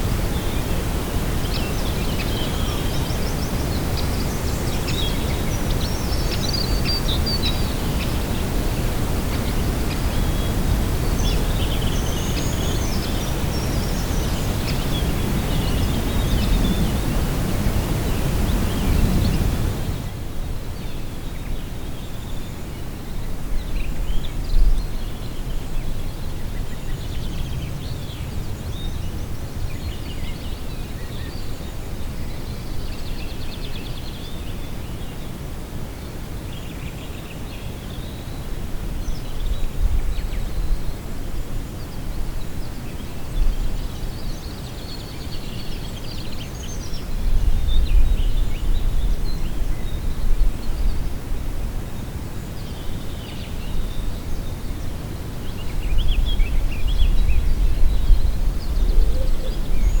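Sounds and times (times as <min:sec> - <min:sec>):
small birds chirping: 0:00.0 - 0:20.3
wind rumbling on microphone: 0:00.0 - 1:00.0.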